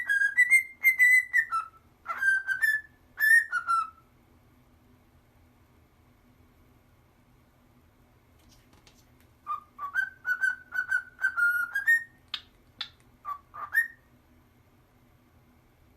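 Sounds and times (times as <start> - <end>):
cockatoo whistling: 0.0 - 4.0, 9.4 - 14.1.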